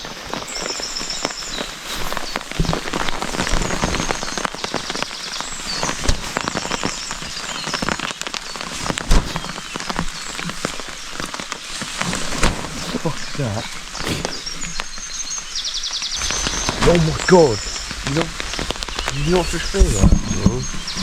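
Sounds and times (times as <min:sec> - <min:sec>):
rain pattering on tent fabric: 0:00.0 - 0:21.0.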